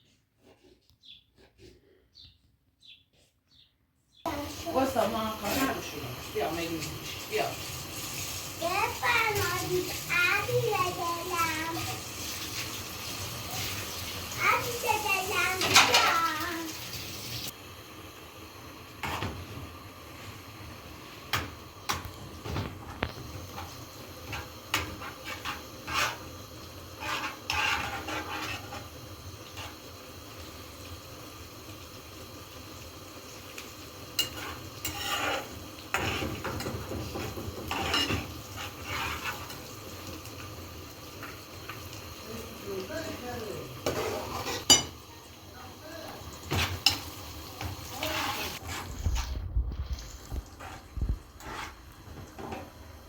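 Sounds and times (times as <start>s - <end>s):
utensils clinking against dishes: 15.6s - 16.4s, 34.2s - 39.6s, 43.8s - 45.1s.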